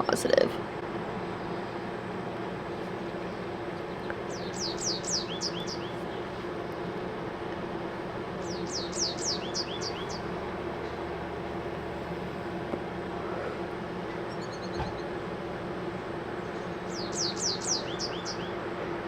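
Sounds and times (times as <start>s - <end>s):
low background hum: 0.0s - 19.0s
songbird singing: 2.8s - 11.5s, 14.0s - 18.7s.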